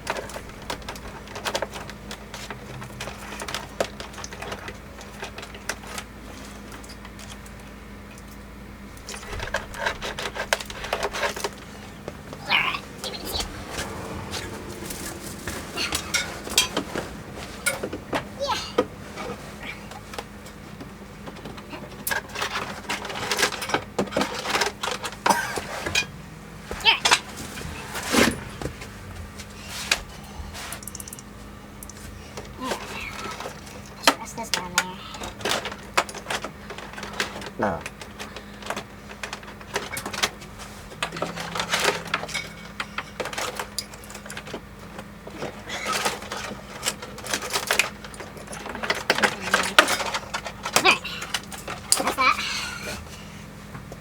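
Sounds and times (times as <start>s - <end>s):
small parts clicking and rattling: 0.0s - 18.9s, 29.8s - 53.0s
steady low hum: 7.6s - 22.1s, 25.2s - 34.1s.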